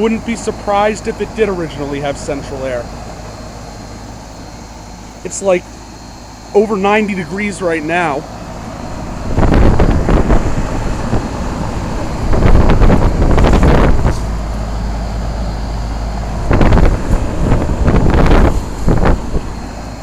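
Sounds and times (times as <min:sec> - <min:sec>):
steady low hum: 0:00.0 - 0:20.0
wind buffeting microphone: 0:08.5 - 0:20.0.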